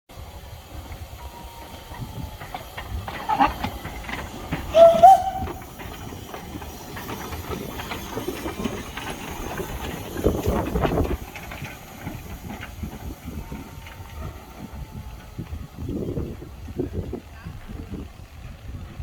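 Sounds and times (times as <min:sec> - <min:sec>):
rush of steam: 0:00.1 - 0:19.0
steam hissing: 0:00.1 - 0:19.0
clanks and clicks: 0:02.4 - 0:13.2
steam train whistle: 0:04.5 - 0:05.9.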